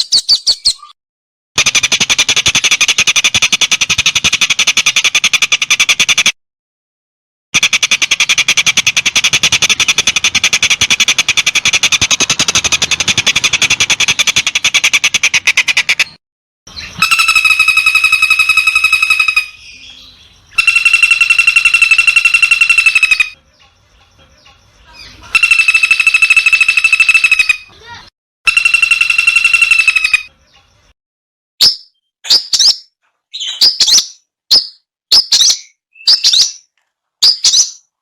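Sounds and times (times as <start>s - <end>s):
bird rapid rattling trill: 1.6s - 6.2s, 7.6s - 16.1s, 16.9s - 19.6s, 20.5s - 23.7s, 25.3s - 30.6s
bird buzzy pulsed notes: 16.8s - 19.8s, 20.5s - 23.4s, 25.4s - 30.3s.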